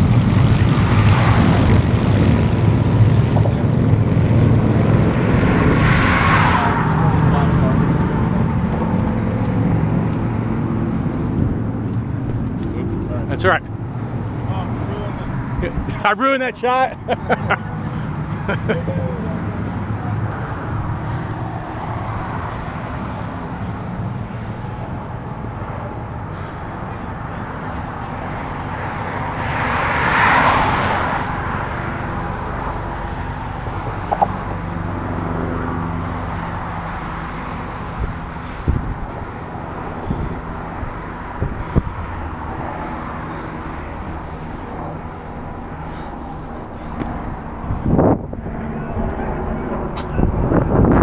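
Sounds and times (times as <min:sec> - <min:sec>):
road traffic passing: 0:00.0 - 0:51.0
vehicle passing loudly: 0:00.0 - 0:51.0
sharp knocks: 0:34.1 - 0:34.4.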